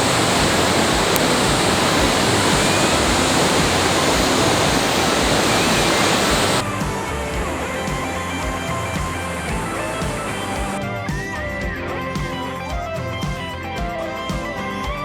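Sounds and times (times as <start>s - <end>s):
river water rushing: 0.0s - 10.8s
faint background music: 0.0s - 15.0s.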